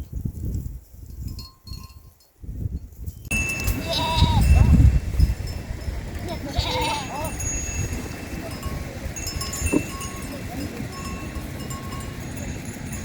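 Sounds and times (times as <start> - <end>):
sheep bleating: 3.7 - 4.7, 6.2 - 7.4.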